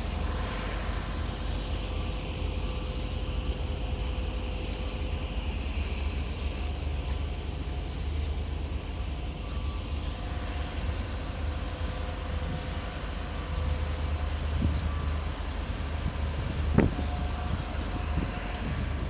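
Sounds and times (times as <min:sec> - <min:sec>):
train rumbling: 0:00.0 - 0:19.0.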